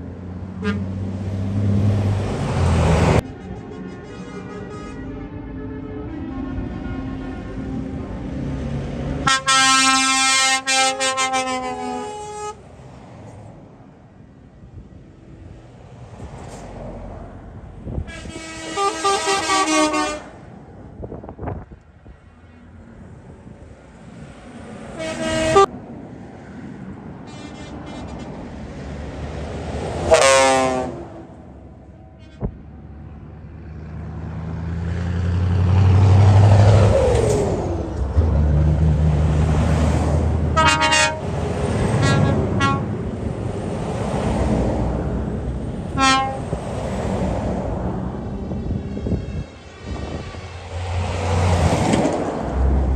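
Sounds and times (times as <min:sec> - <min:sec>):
truck engine driving past: 0:00.0 - 0:20.8, 0:22.2 - 0:52.9
truck horn blasts: 0:00.5 - 0:01.0, 0:03.0 - 0:08.2, 0:09.2 - 0:12.6, 0:18.0 - 0:20.5, 0:25.0 - 0:25.7, 0:27.3 - 0:28.4, 0:30.1 - 0:31.3, 0:32.1 - 0:32.6, 0:39.7 - 0:43.2, 0:45.9 - 0:46.6, 0:48.4 - 0:50.5.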